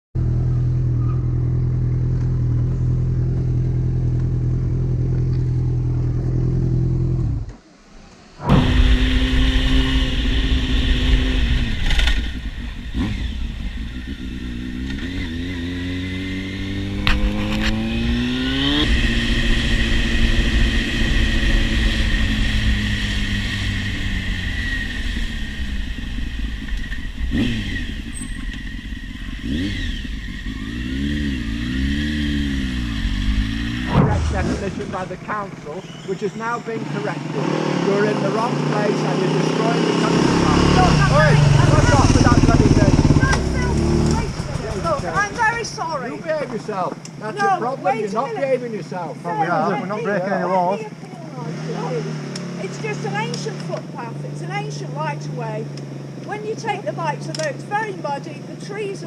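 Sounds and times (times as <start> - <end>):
motorcycle engine revving: 0.2 - 59.0
low engine drone: 3.0 - 36.0.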